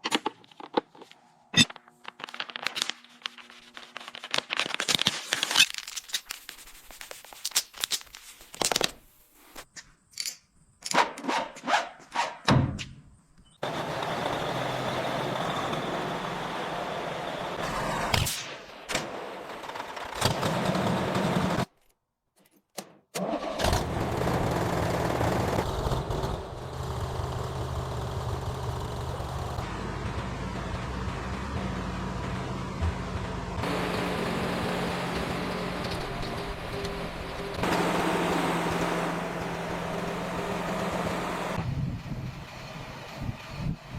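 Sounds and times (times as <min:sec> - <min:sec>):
tractor engine running: 0:13.6 - 0:18.2, 0:23.2 - 0:43.9.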